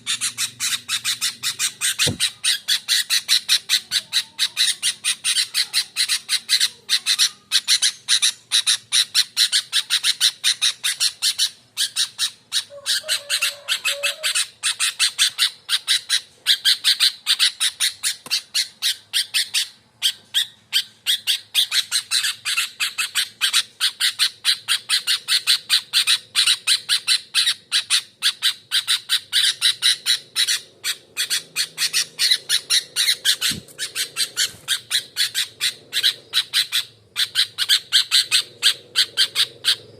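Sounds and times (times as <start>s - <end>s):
bulbul harsh rapid calls: 28.2s - 39.9s.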